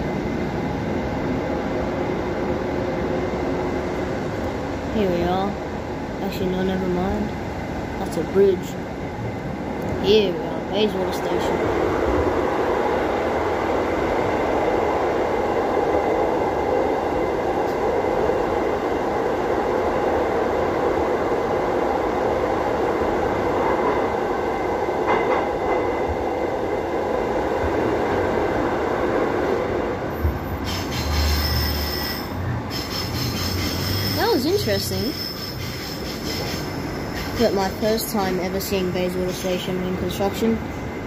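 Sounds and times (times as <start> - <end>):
rumble of wheels on rail: 0.0 - 41.0
high-pitched squeal: 30.6 - 37.4.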